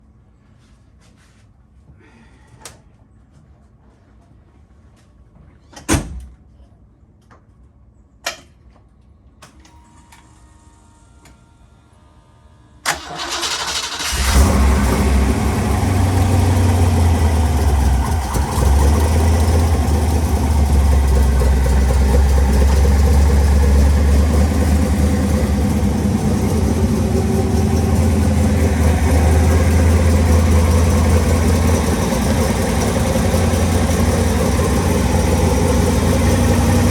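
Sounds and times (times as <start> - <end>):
engine cranking and starting: 12.9 - 36.9
deep engine idle: 13.2 - 36.9.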